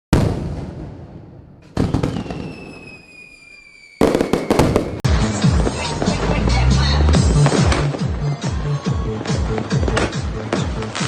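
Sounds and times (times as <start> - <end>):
firework bangs: 0.1 - 11.0
firework whistle falling: 1.7 - 5.0
firework crackling: 1.7 - 11.0
music: 5.0 - 11.0.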